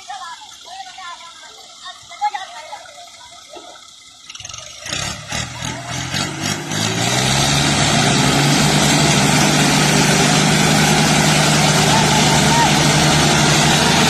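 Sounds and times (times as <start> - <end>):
tractor engine starting: 3.6 - 14.0.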